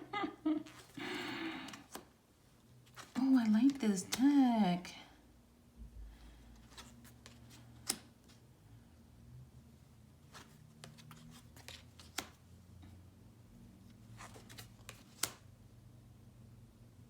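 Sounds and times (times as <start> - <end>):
cards clicking and sliding: 0.6 - 2.1, 6.6 - 8.4, 10.3 - 12.4, 14.1 - 15.5
card snapping: 1.0 - 2.1, 7.8 - 8.1, 14.5 - 15.4.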